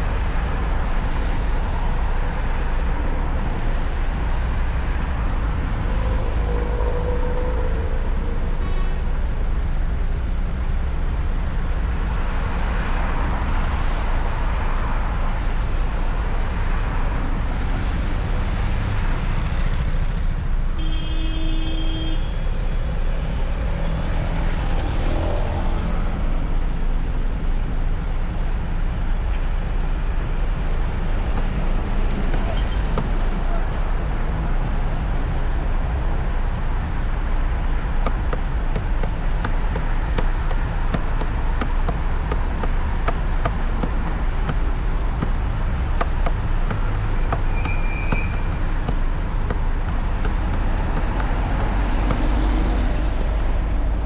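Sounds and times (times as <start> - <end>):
passing traffic: 0.0 - 54.0
wind and road noise: 0.0 - 54.0.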